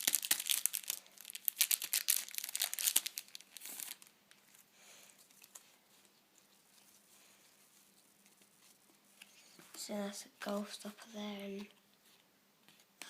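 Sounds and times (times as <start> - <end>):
foil pack tearing and crackling: 0.0 - 4.0
wrapper and cards rustling: 0.0 - 13.0.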